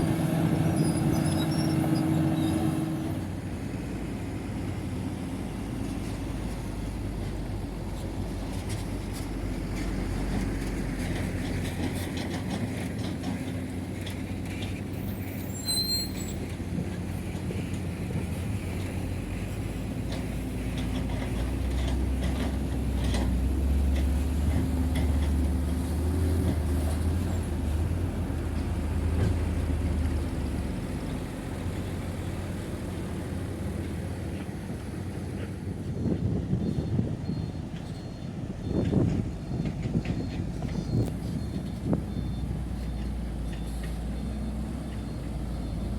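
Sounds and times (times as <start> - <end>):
heavy diesel machinery engines: 0.0 - 45.9.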